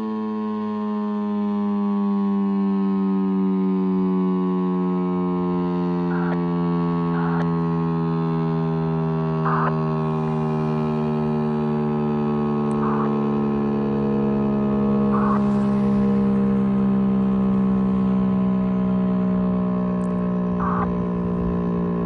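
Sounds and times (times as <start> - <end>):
warning siren steady tone: 0.0 - 22.0
short raspy blips: 6.1 - 6.4, 7.2 - 7.5, 9.5 - 9.7, 12.7 - 13.1, 20.6 - 20.9.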